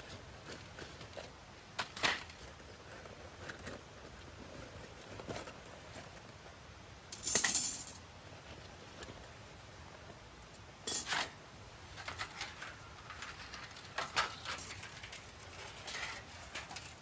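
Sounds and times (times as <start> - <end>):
scraping rustle: 10.9 - 17.0.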